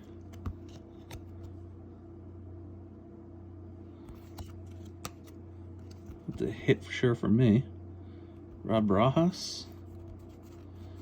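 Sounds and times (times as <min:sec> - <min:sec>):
cards being flipped through: 0:00.0 - 0:01.6, 0:04.0 - 0:06.6, 0:09.8 - 0:11.0
steady low hum: 0:00.0 - 0:11.0.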